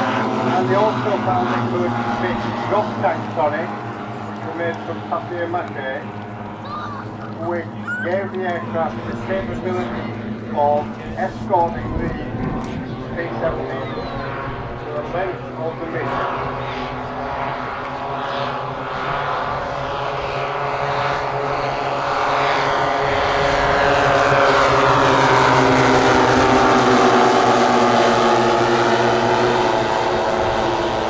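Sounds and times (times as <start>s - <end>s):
model plane propeller engines: 0.0s - 31.0s.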